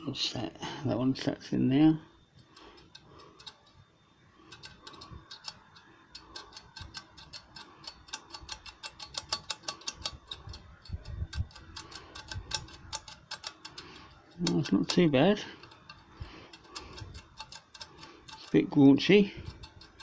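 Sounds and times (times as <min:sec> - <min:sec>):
metallic clicking and rattling: 0:02.4 - 0:03.8, 0:04.4 - 0:20.0.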